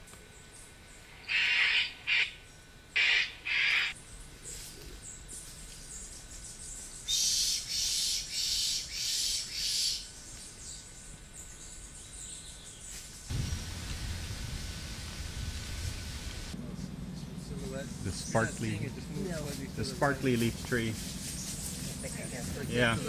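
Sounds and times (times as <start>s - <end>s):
bird giving harsh scratchy calls: 1.3s - 2.3s, 3.0s - 4.0s, 20.9s - 22.5s
low rumble: 13.3s - 22.6s.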